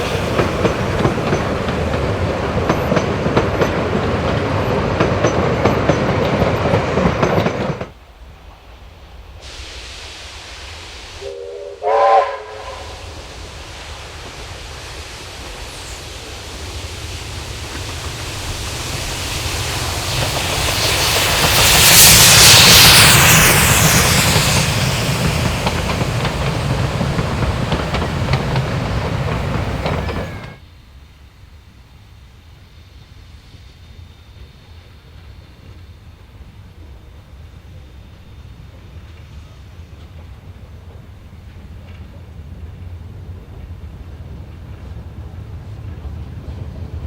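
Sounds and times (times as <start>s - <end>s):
steam train passing: 0.0s - 47.0s
steam locomotive whistle: 11.1s - 13.2s, 20.7s - 30.6s.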